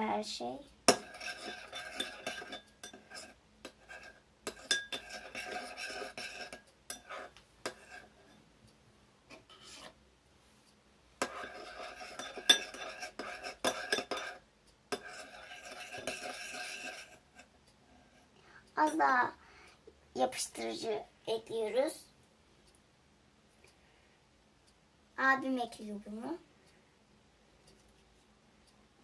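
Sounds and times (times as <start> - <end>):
utensil scraping a bowl: 0.9 - 8.4, 9.3 - 10.0, 11.2 - 19.0.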